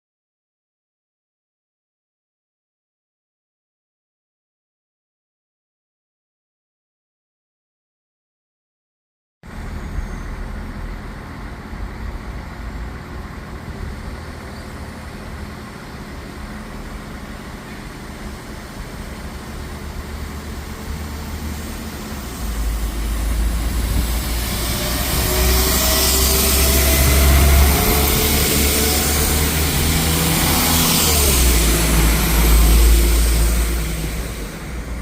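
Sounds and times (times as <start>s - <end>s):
train rumbling: 9.5s - 35.0s
hiss: 18.0s - 35.0s.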